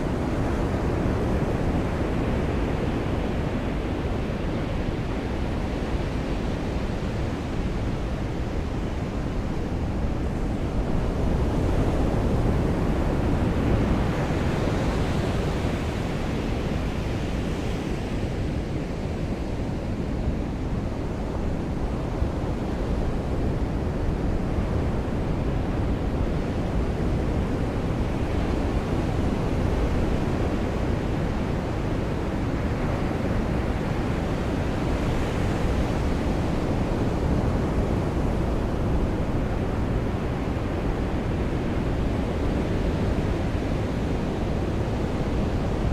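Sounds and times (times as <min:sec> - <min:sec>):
ocean surf washing on beach: 0:00.0 - 0:45.9.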